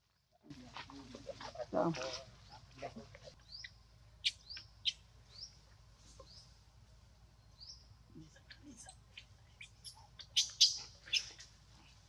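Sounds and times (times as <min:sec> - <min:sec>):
small birds chirping: 0:03.3 - 0:06.6, 0:07.3 - 0:12.0.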